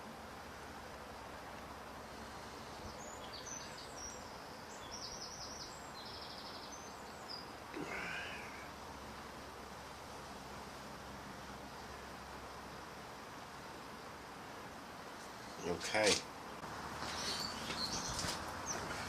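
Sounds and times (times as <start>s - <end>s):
background hiss: 0.0s - 19.0s
bird chirps and trills: 2.8s - 7.6s, 17.0s - 19.0s.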